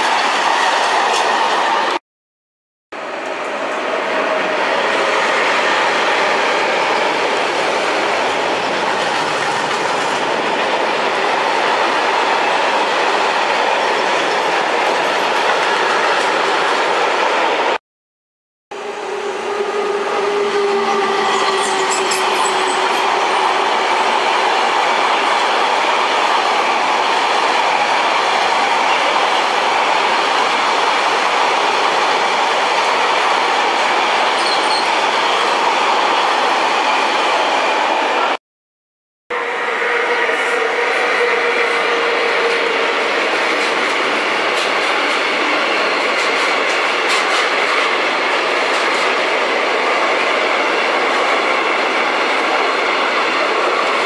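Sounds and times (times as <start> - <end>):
high wheel squeal: 19.4 - 23.4, 34.4 - 35.5
train wheels rattling over rails: 41.5 - 54.0.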